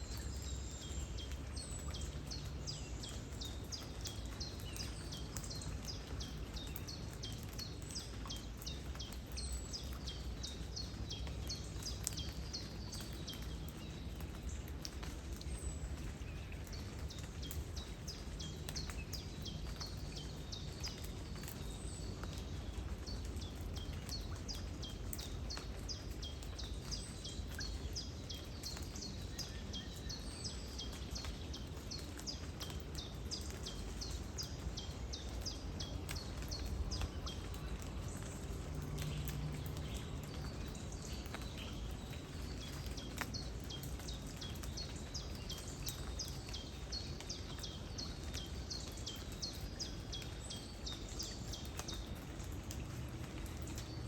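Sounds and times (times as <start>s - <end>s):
flowing water with low rumble: 0.0s - 54.0s
steady rain: 0.0s - 54.0s.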